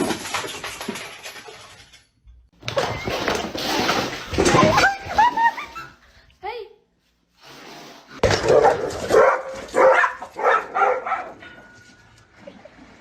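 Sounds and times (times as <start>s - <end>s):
dog barking: 8.4s - 11.4s.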